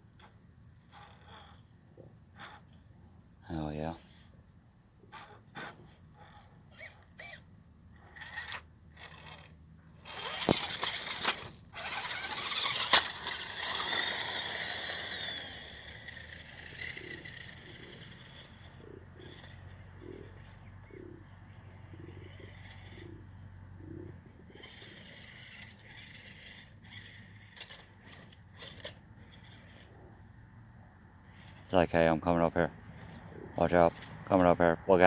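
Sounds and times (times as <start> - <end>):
toy car scraping over rocks: 0.2 - 1.7, 2.3 - 2.8, 5.1 - 21.0, 22.1 - 23.5, 24.4 - 30.5, 31.2 - 35.0.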